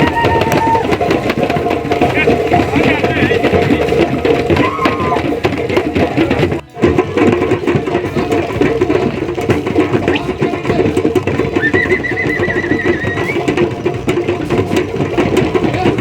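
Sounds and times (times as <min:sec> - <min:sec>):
crowd: 0:00.0 - 0:16.0
live drumming: 0:00.0 - 0:16.0.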